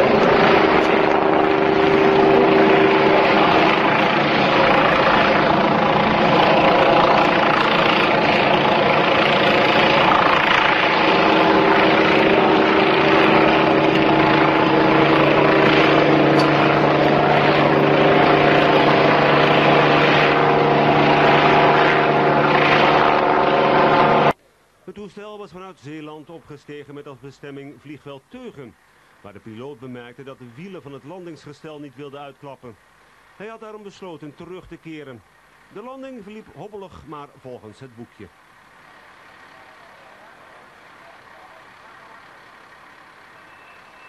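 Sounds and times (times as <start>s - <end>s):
propeller aircraft engine: 0.0s - 24.4s, 38.3s - 44.0s.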